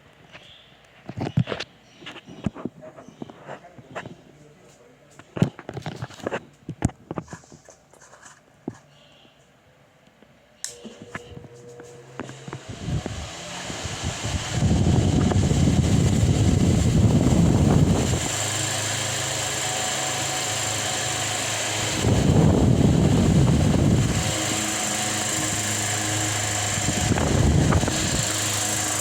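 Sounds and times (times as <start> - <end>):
fan motor humming: 10.6 - 29.0
rushing air: 12.0 - 29.0.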